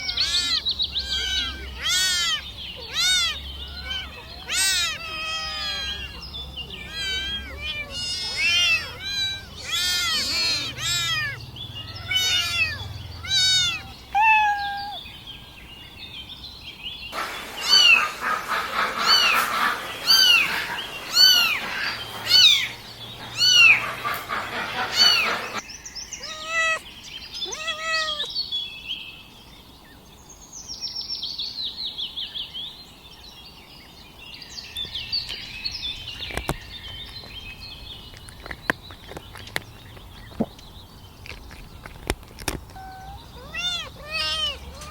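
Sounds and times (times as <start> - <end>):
kittens mewing: 0.0 - 15.0, 19.0 - 25.6, 26.2 - 26.8, 27.4 - 28.3, 42.7 - 44.9.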